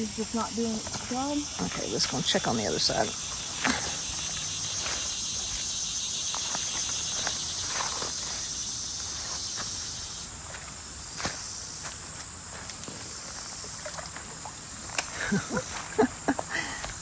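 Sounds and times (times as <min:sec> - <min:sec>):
footsteps: 0:00.0 - 0:14.3
insects chorus: 0:00.0 - 0:17.0.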